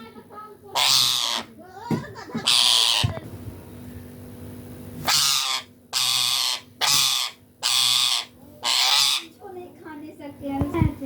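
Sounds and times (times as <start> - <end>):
parrot giving raspy calls: 0.7 - 1.6, 2.4 - 3.2, 5.0 - 9.4.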